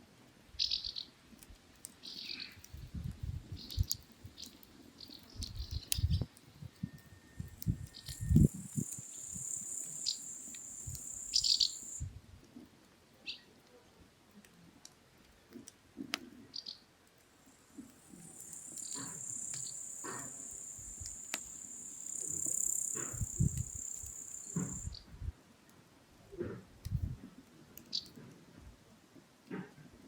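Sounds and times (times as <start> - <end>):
wood fire crackling and popping: 1.3 - 12.6, 17.0 - 24.9
insect buzzing: 8.2 - 12.0, 18.0 - 24.9.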